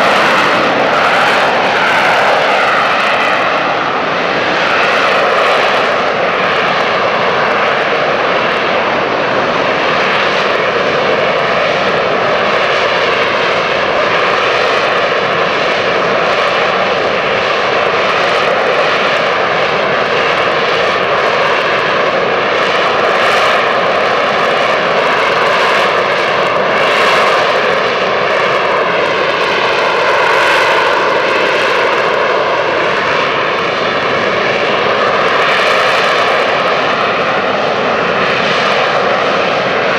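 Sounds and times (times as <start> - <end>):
jet engine roaring with whine: 0.0 - 39.9.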